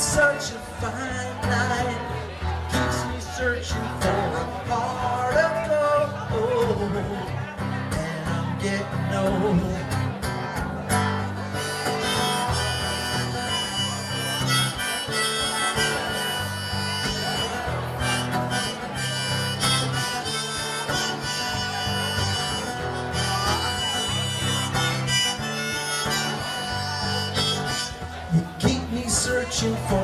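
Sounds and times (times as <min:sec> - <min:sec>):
acoustic guitar: 0:00.0 - 0:30.0
bass line: 0:06.0 - 0:30.0
harmonica solo: 0:10.9 - 0:28.9.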